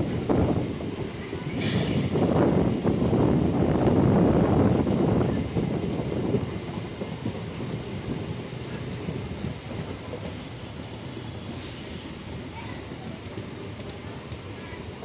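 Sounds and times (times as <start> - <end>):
train wheels rumbling on rails: 0.0 - 15.0
high-pitched wheel squeal: 10.2 - 12.6.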